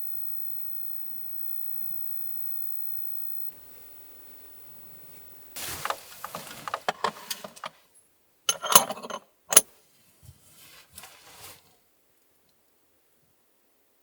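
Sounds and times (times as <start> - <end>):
handling clicks and rustles: 5.6 - 7.8, 8.5 - 9.6.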